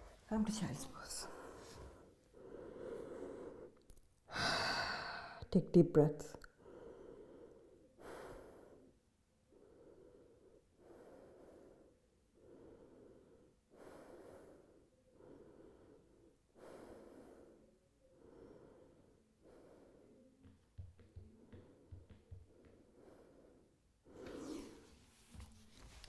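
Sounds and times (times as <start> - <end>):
slow deep breathing: 1.3 - 5.4, 6.6 - 20.4.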